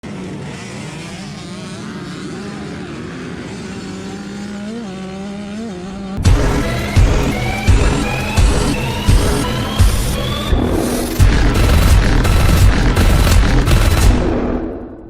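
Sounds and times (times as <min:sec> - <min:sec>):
dirt bike engines running: 0:00.0 - 0:14.2
music with a beat: 0:06.2 - 0:14.6.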